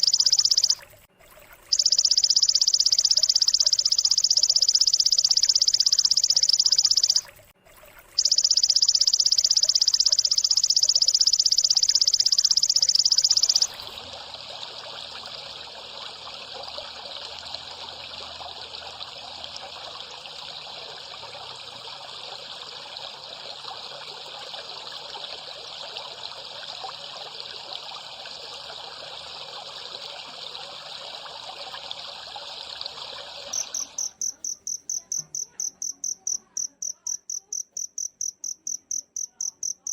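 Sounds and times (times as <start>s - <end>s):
cricket chirping: 0.0s - 0.8s, 1.7s - 7.3s, 8.2s - 13.8s, 33.5s - 39.9s
high-pitched insect trill: 0.0s - 0.8s, 1.7s - 7.3s, 8.2s - 13.8s, 33.5s - 39.9s.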